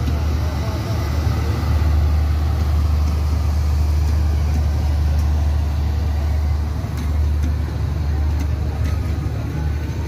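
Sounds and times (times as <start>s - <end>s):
passenger train rumbling past: 0.0s - 10.0s.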